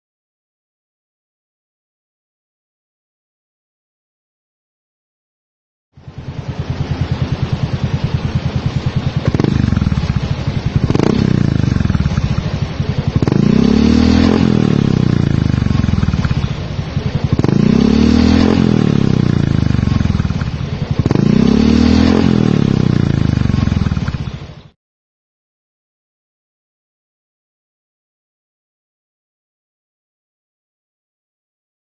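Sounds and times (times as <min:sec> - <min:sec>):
scooter engine idling and revving: 0:06.0 - 0:24.8.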